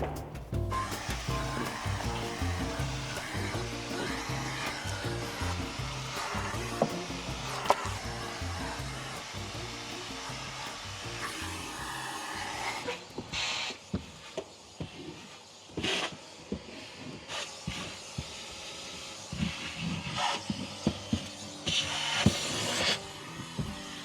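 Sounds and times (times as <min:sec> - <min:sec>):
spray bottle spritzing: 0:00.0 - 0:13.6.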